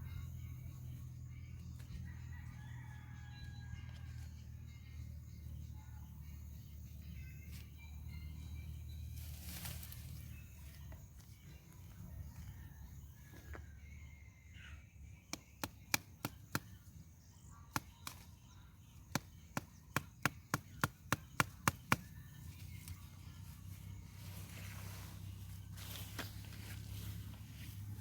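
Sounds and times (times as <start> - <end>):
hand tool chopping: 19.1 - 22.1.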